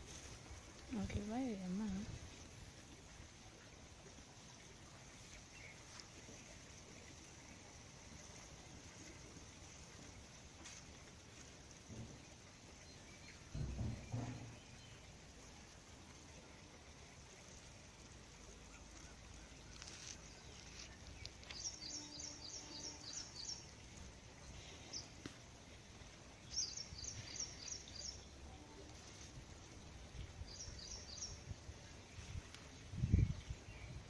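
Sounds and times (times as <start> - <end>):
outdoor background noise: 0.0 - 34.0
small bird chirping: 18.8 - 23.8.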